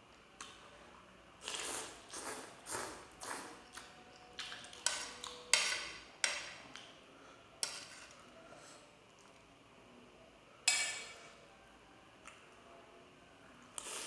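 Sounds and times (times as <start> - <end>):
spoon clinking against a bowl: 10.7 - 11.3.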